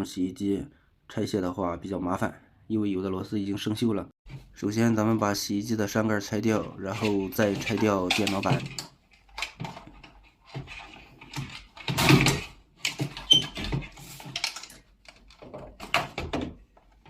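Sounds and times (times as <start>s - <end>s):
plastic and metal parts rattling: 6.5s - 17.0s.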